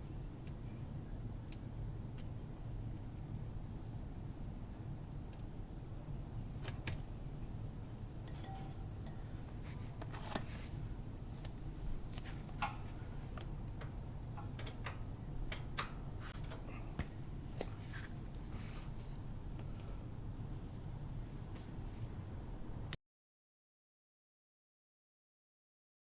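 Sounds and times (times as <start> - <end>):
steady low hum: 0.0 - 23.0
metallic clinks of tools: 8.3 - 9.2.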